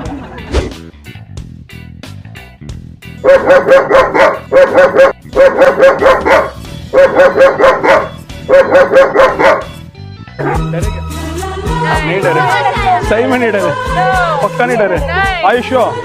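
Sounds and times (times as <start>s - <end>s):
recorded dog barking: 3.2s - 9.8s, 10.4s - 10.8s.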